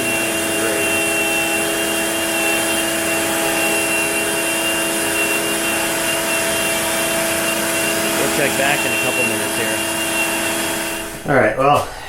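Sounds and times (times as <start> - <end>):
router motor whine: 0.0 - 12.0.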